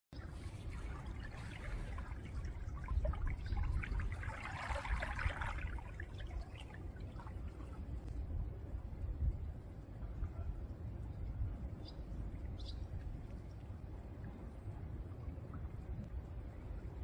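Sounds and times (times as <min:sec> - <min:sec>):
small waves lapping: 0:00.2 - 0:08.1
water trickling through stones: 0:00.2 - 0:08.2
low rumble: 0:00.2 - 0:17.0.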